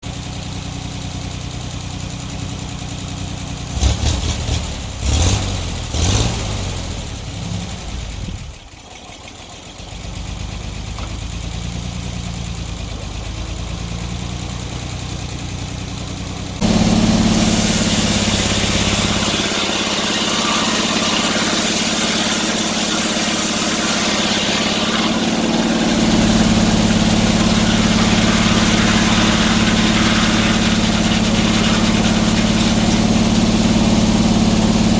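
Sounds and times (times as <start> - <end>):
sawmill engine running: 0.0 - 34.9
hiss: 16.6 - 34.9.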